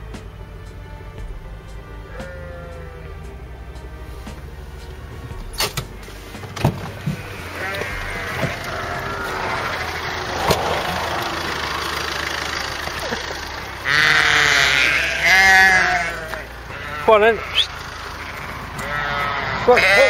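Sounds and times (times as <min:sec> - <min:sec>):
sheep bleating: 0:02.0 - 0:03.2, 0:07.0 - 0:20.0.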